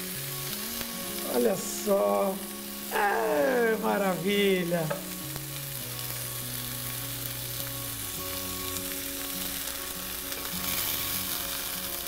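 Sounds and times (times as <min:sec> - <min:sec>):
faint background music: 0:00.0 - 0:12.0
patties sizzling in oil: 0:00.0 - 0:12.0.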